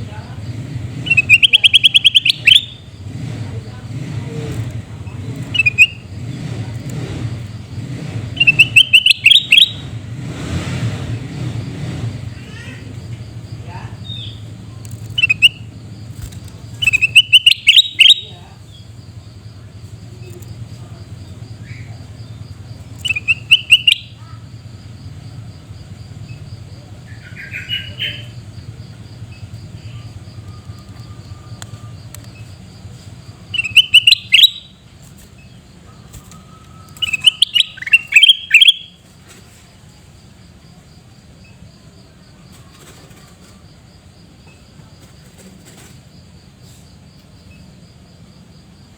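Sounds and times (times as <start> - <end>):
bulbul harsh chirping: 0.4 - 3.3, 4.0 - 10.6, 13.7 - 18.8, 21.5 - 24.4, 29.2 - 39.0.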